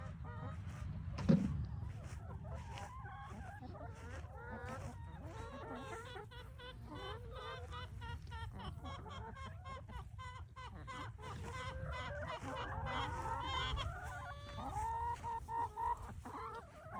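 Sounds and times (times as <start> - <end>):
chickens clucking: 0.0 - 16.9
sharp thump: 1.2 - 1.6.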